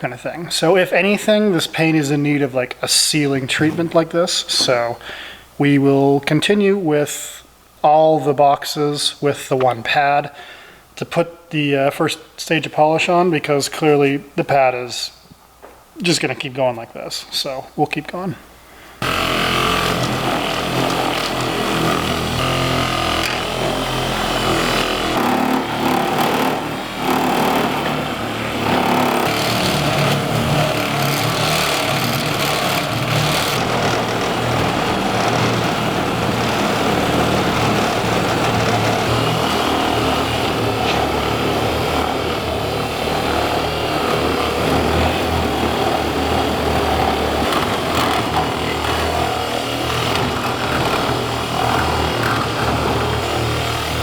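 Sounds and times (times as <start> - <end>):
power polisher running: 19.0 - 54.0.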